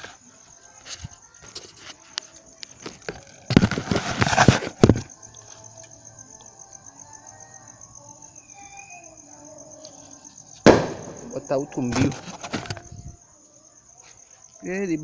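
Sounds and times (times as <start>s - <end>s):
crickets trilling: 0.0s - 15.0s
firecrackers crackling: 3.3s - 5.0s, 10.6s - 12.6s.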